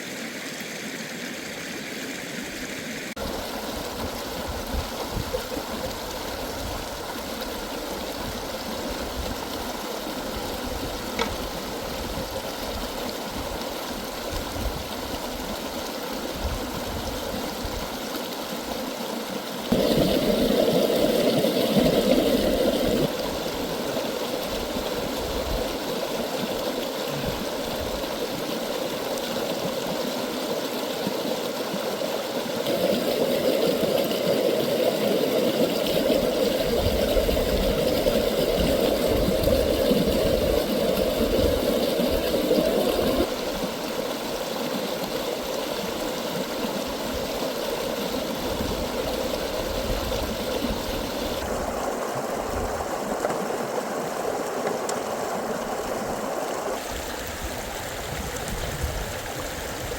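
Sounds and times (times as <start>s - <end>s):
stream babbling: 0.0s - 59.9s.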